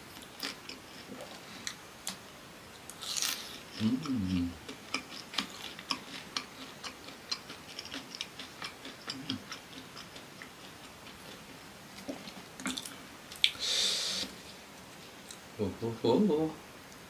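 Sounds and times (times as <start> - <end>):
crunchy food chewing: 0.2 - 2.2, 2.8 - 13.6.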